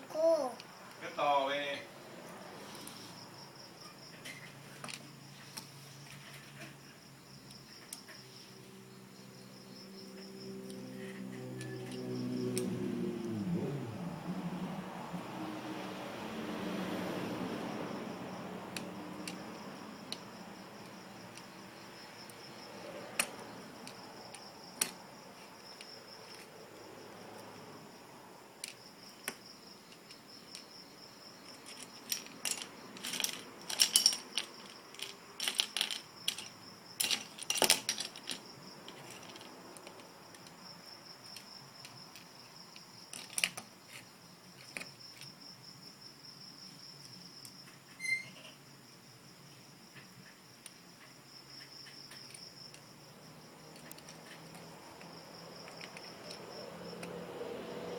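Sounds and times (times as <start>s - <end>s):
plastic bricks clicking and clattering: 31.6s - 40.5s, 43.1s - 44.0s.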